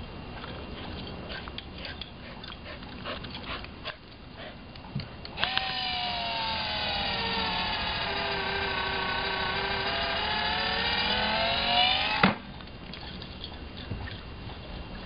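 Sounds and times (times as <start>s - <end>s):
sharp clicks: 4.7s - 13.1s
ball launcher motor whine: 5.4s - 12.5s.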